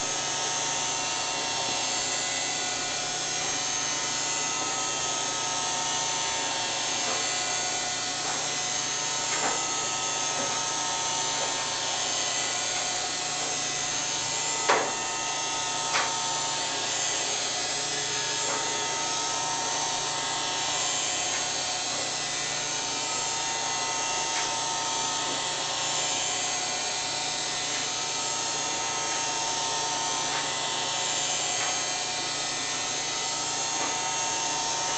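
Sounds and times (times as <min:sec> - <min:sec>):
robot vacuum motor whir: 0:00.0 - 0:34.9.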